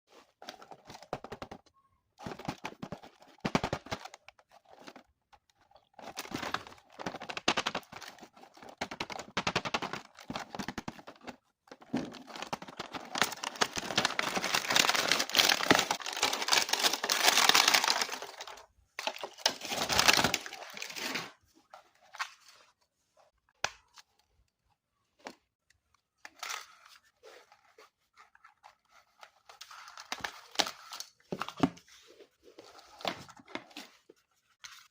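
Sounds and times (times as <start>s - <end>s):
plastic crinkling: 12.1s - 21.3s.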